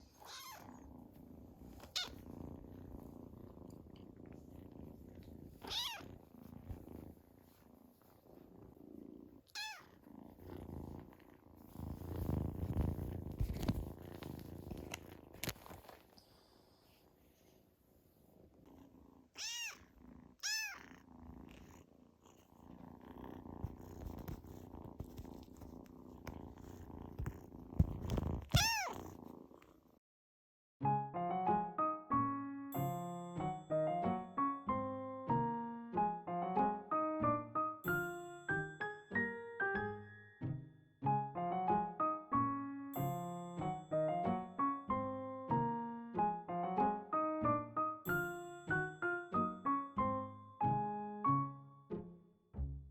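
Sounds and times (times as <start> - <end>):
kitten purring: 0.0 - 30.0, 41.1 - 50.9
kitten mewing: 0.1 - 0.8, 1.8 - 2.2, 5.6 - 6.1, 9.5 - 10.0, 19.4 - 20.9, 28.4 - 29.2.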